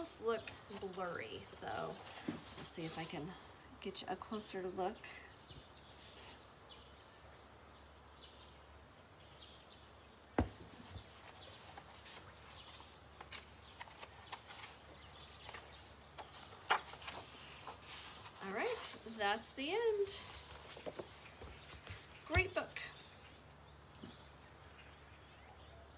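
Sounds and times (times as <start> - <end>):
soft paper rustles: 0.0 - 3.4, 10.5 - 22.6.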